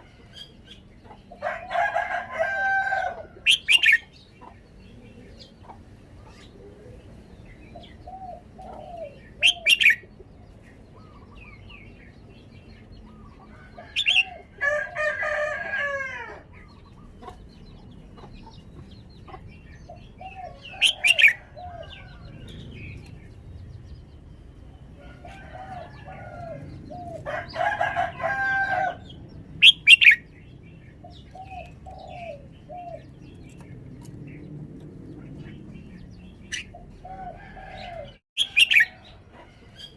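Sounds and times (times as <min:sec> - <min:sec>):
bird warbling song: 0:03.2 - 0:14.6, 0:16.4 - 0:39.9.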